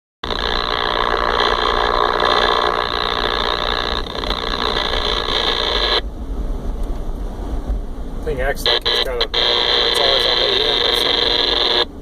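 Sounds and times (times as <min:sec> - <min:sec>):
radio speaker buzzing: 0:00.2 - 0:06.0, 0:08.3 - 0:12.0.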